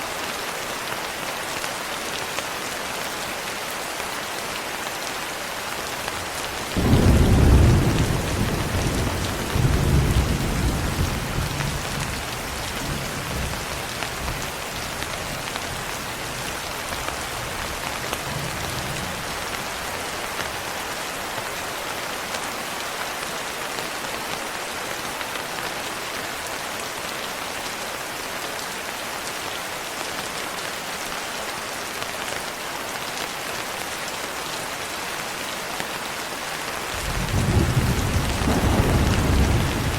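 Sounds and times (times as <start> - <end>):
rain on a window: 0.0 - 39.9
thunder crack and rumble: 6.8 - 13.6, 37.0 - 39.9.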